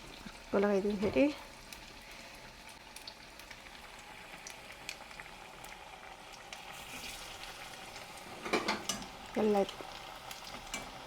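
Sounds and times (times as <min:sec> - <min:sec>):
oil sizzling in deep fryer: 0:00.0 - 0:11.0
small pops and crackles: 0:04.4 - 0:06.7.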